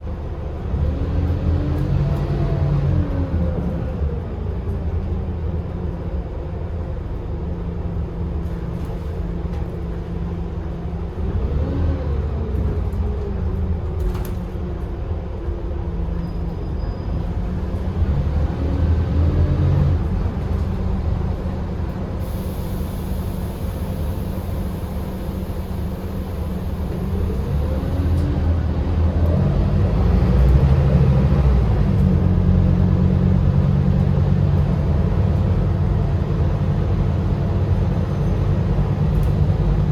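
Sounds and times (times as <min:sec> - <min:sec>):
bus diesel engine running: 0:00.0 - 0:39.9
gearbox whine: 0:22.2 - 0:28.6.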